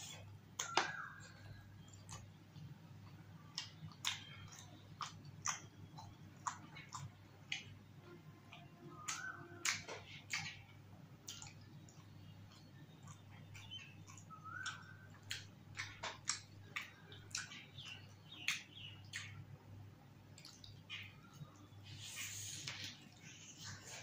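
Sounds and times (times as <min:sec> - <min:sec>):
wet mouth chewing clicks: 0:03.0 - 0:07.8, 0:08.5 - 0:19.4.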